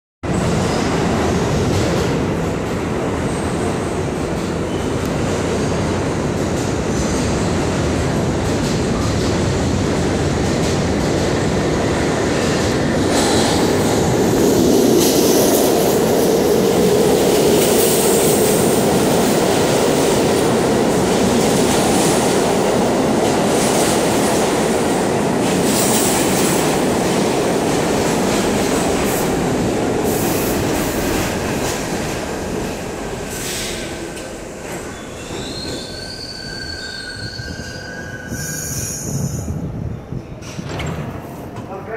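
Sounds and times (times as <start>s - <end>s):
subway car rumble: 0.2s - 41.9s
wheel squeal: 34.9s - 39.4s.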